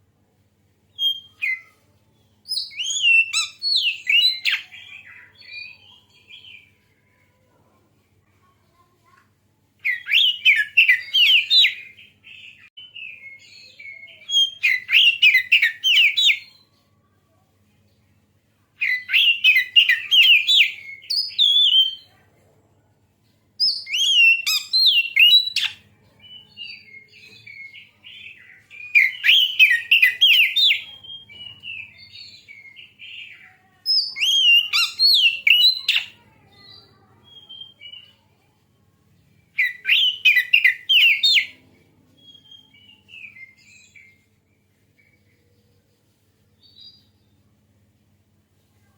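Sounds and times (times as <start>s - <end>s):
bird singing whistled phrases: 0.9s - 1.8s, 2.4s - 6.7s, 9.8s - 16.6s, 18.8s - 22.1s, 23.6s - 33.2s, 33.9s - 38.2s, 39.6s - 41.5s, 42.2s - 44.2s
soft bird twittering: 0.9s - 7.3s, 23.6s - 38.4s.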